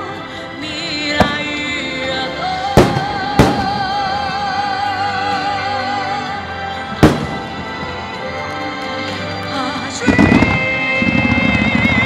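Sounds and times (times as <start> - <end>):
firework bangs: 1.2 - 1.6, 2.8 - 4.4, 6.9 - 8.2.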